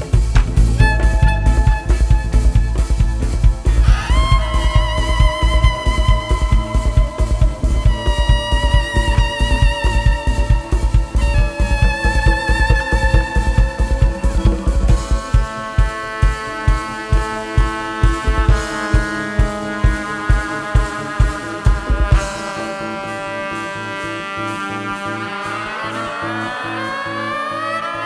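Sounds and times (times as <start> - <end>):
kick drum beat: 0.0 - 22.4
sustained chords: 0.0 - 28.0.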